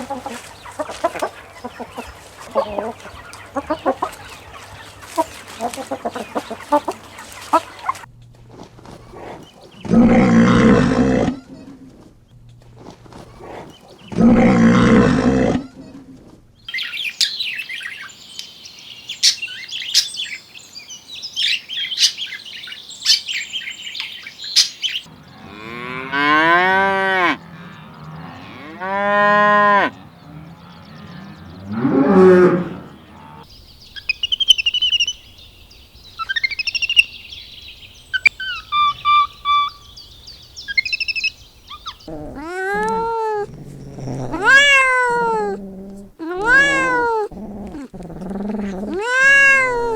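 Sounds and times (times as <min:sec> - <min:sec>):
bird chirping: 0:16.6 - 0:25.7, 0:30.0 - 0:49.9
livestock calls: 0:25.0 - 0:33.5, 0:40.8 - 0:49.9
whistled bird notes: 0:36.2 - 0:42.1
loud rough animal call: 0:42.1 - 0:49.9.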